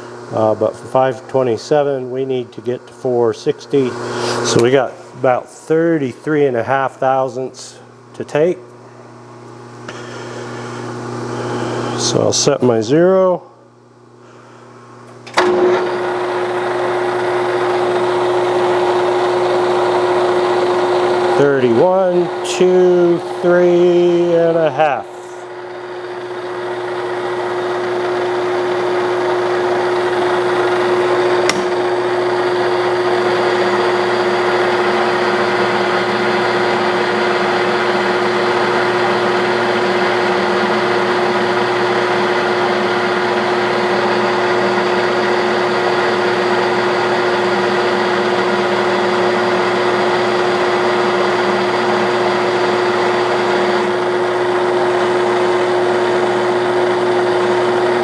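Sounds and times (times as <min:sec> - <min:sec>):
metal lathe running: 0:15.4 - 0:58.0
sharp click: 0:31.4 - 0:31.8.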